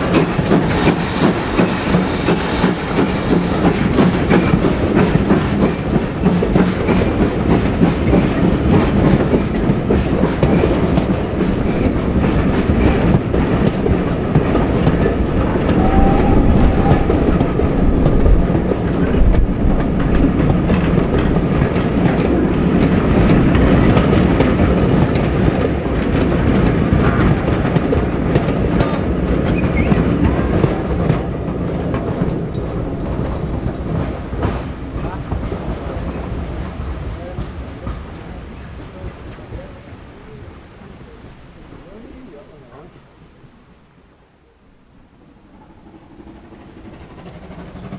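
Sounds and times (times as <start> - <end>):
train wheels clattering over rails: 0.0 - 43.5, 44.2 - 47.9.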